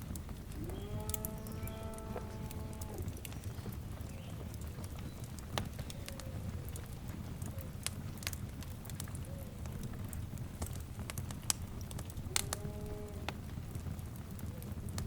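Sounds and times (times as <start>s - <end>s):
fire crackling: 0.0s - 15.0s
animal call: 0.6s - 3.2s.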